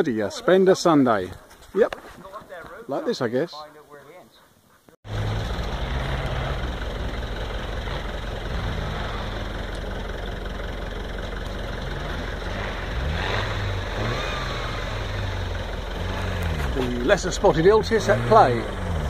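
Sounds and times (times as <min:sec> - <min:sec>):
engine revving: 0:05.0 - 0:19.0
vehicle driving over rough ground: 0:05.1 - 0:19.0.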